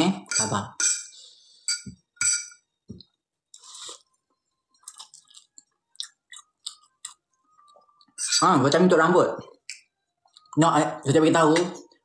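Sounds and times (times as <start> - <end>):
person chewing noodles: 3.5 - 8.2.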